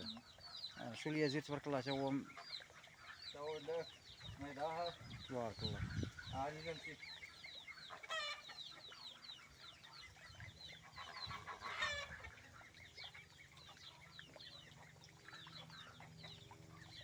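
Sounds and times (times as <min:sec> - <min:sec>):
chicks peeping: 0:00.0 - 0:17.0
chicken squawk: 0:08.0 - 0:08.5, 0:11.0 - 0:12.4.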